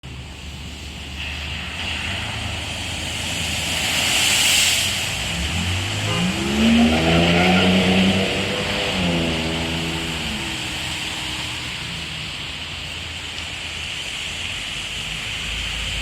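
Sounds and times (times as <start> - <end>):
tyre spray hiss: 1.1 - 6.6
engine accelerating: 5.2 - 12.0.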